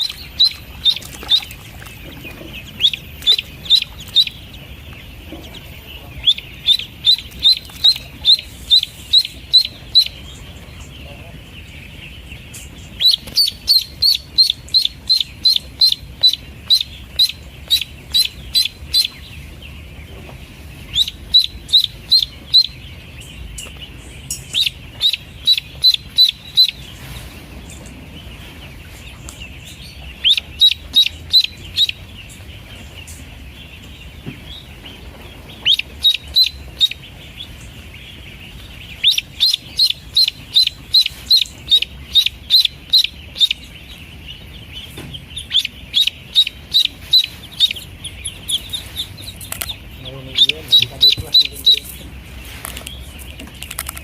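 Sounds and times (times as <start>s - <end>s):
duckling peeping: 0.0s - 54.0s.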